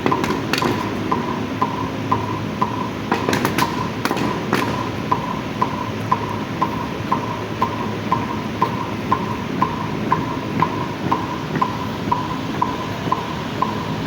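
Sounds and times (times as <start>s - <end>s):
sharp slaps: 0.0s - 6.3s
steady ticking beat: 0.0s - 14.0s.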